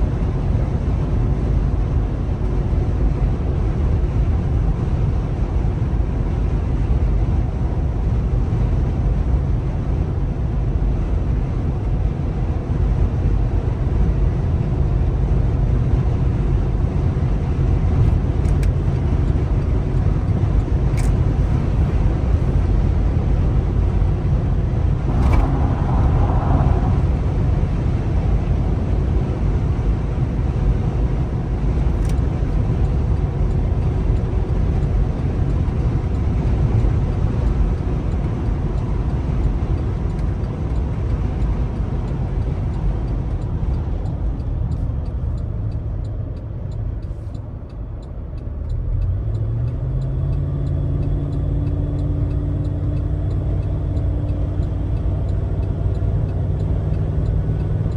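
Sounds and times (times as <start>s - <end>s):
car engine and tyres rumbling: 0.0s - 57.9s
light ticking: 38.8s - 57.9s.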